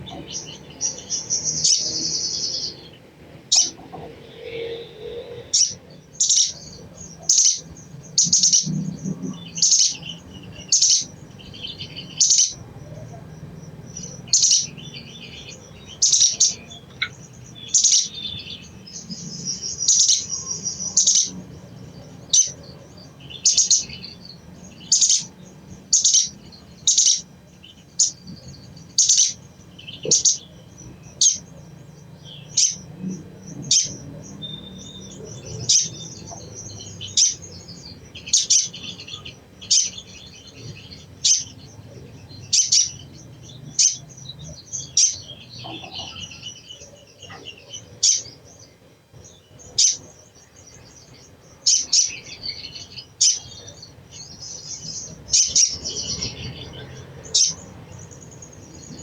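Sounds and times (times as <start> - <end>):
bird chattering: 0.0 - 4.7, 5.3 - 59.0
bird chipping calls: 0.0 - 59.0.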